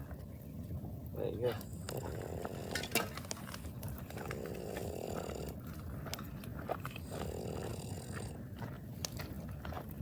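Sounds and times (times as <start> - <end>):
campfire crackling and popping: 0.0 - 10.0.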